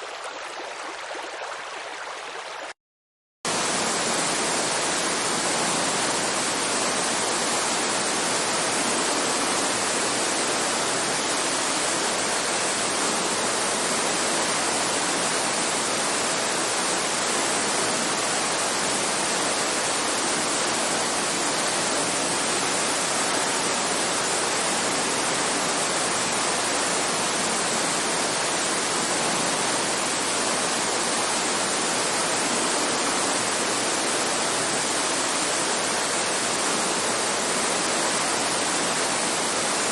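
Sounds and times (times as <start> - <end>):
steady rainfall: 3.5 - 39.9.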